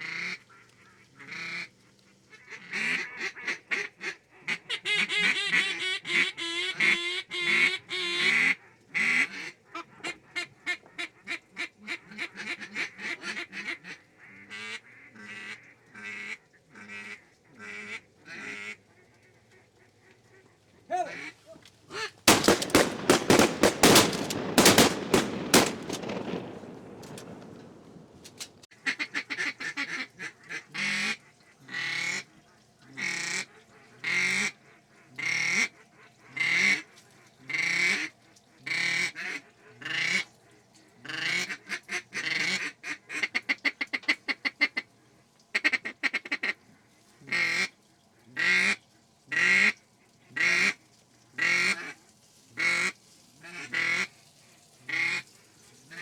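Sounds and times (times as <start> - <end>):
duck quacking: 4.5 - 13.5
loud rapid clatter: 22.3 - 27.6.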